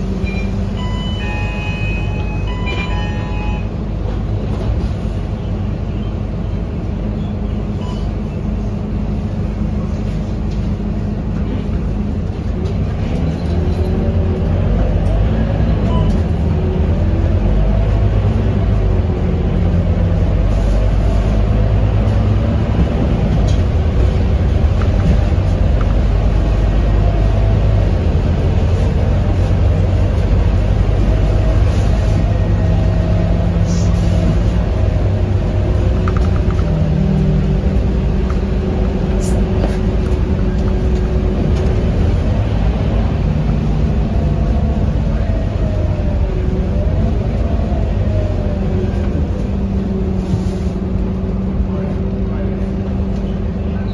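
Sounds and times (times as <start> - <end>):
bus diesel engine running: 0.0 - 53.9.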